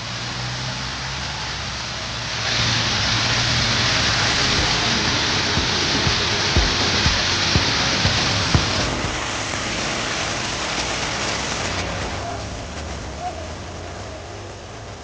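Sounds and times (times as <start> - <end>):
heavy rain falling: 0.0 - 15.0
low hum: 1.9 - 15.0
short low thuds: 4.6 - 9.2.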